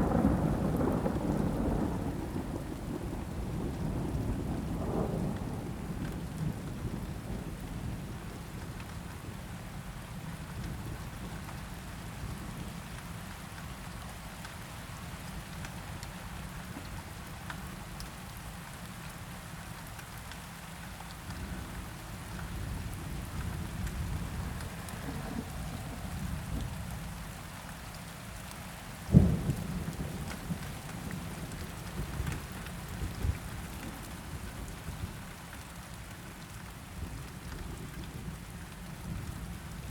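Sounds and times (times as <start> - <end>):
rolling thunder: 0.0 - 7.7, 29.1 - 30.6
steady rain: 0.0 - 39.9.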